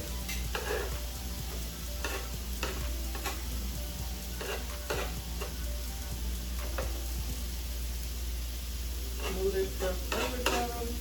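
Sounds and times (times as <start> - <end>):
food sizzling on a griddle: 0.0 - 11.0
spatula scraping and knocking: 0.2 - 3.6, 4.3 - 5.6, 6.6 - 7.0, 9.2 - 10.8.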